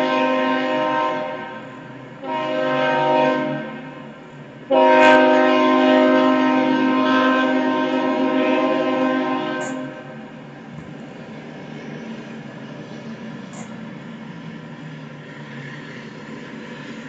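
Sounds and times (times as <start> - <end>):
locomotive air horn blasts: 0.0 - 10.3.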